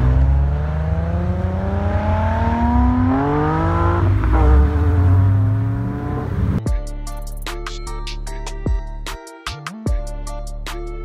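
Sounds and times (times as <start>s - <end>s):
car engine accelerating hard: 0.0s - 6.6s.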